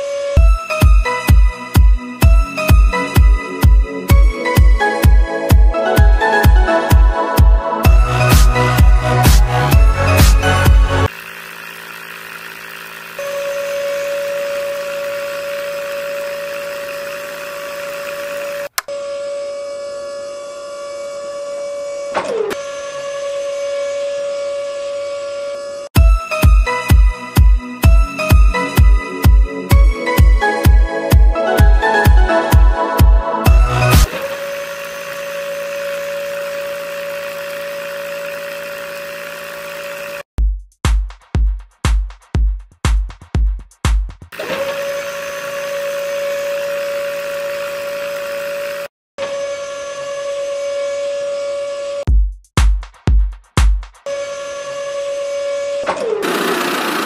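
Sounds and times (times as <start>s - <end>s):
dance music with kick drum: 0.4s - 11.1s, 26.0s - 34.1s, 40.4s - 44.4s, 52.1s - 54.1s
small electric motor whining: 11.0s - 25.9s, 33.5s - 40.3s, 44.4s - 52.1s.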